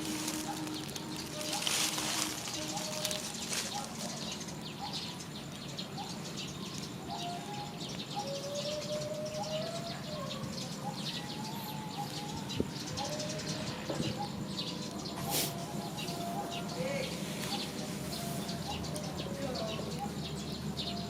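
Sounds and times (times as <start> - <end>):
small birds chirping: 0.0 - 21.0
thin whistle-like bird calls: 0.0 - 21.0.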